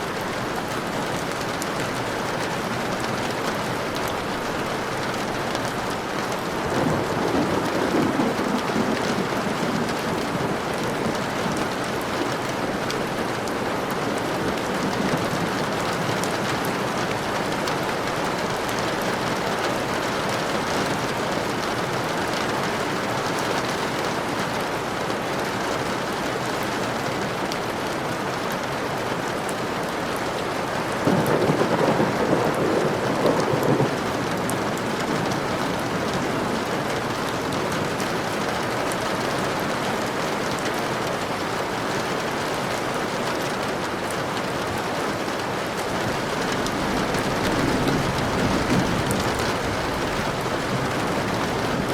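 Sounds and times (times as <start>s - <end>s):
steady rain falling: 0.0s - 51.9s
thunder rolling: 6.5s - 12.0s, 31.0s - 38.2s, 46.0s - 51.9s.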